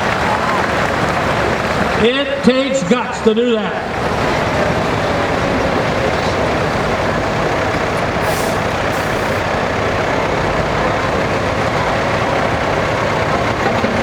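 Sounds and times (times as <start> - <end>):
heavy truck engine running: 0.0 - 14.0
air brake hisses: 8.2 - 9.4.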